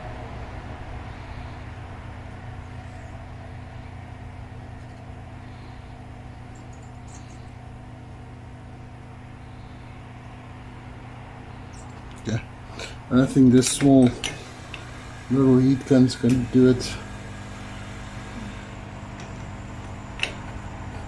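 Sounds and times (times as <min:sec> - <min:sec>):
heat gun blowing with low hum: 0:00.0 - 0:21.0.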